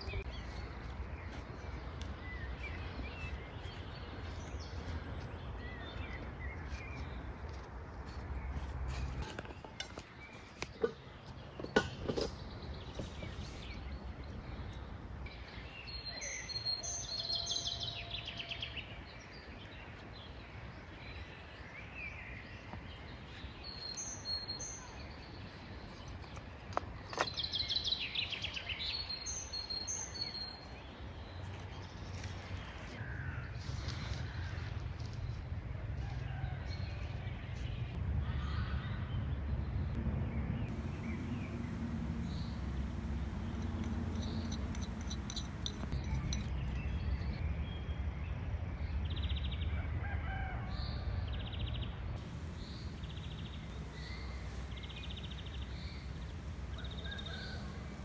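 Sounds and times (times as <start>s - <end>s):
steady background noise: 38.0s - 47.6s, 52.2s - 58.0s
birds singing and calling: 40.7s - 47.4s, 52.2s - 58.0s.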